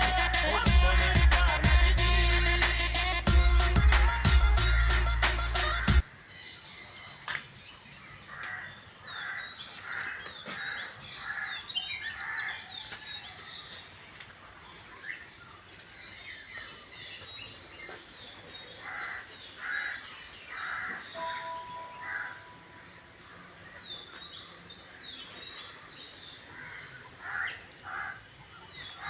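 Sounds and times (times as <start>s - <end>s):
song: 0.0s - 6.0s, 21.2s - 22.7s
harsh repeated bird calls: 0.0s - 7.4s, 8.0s - 13.5s, 17.4s - 29.0s.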